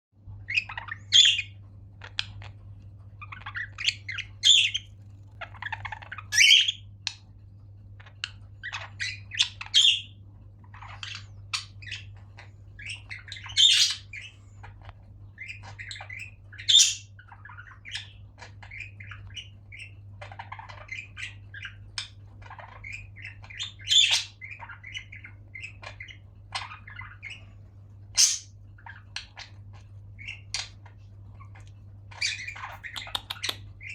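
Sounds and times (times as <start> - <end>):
steady low hum: 0.2 - 33.9
budgerigars chattering and chirping: 0.4 - 7.3, 8.0 - 33.9.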